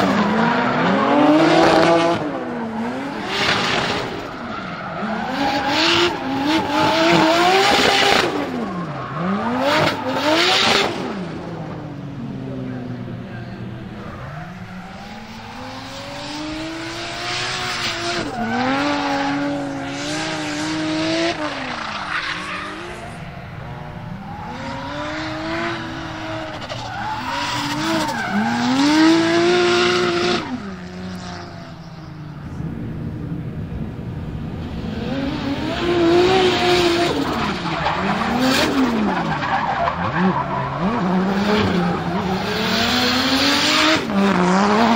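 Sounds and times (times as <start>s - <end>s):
car engine revving hard: 0.0s - 4.3s, 5.0s - 11.5s, 14.7s - 31.4s, 34.6s - 39.4s, 40.8s - 44.9s
tyres skidding and squealing: 0.0s - 33.8s, 34.4s - 44.9s.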